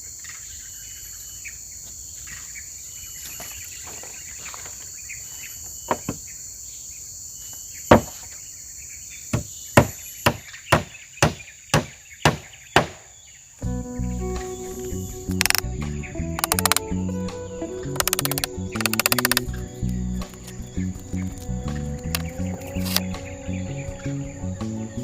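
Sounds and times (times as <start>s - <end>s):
hammer striking wood: 7.9s - 8.2s, 9.4s - 13.0s
insects chirring: 14.4s - 25.0s.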